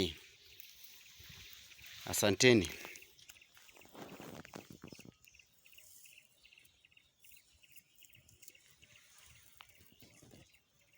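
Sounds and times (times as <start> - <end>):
faint high pulsed chirping: 0.0 - 10.9
soft rustles: 2.8 - 5.2.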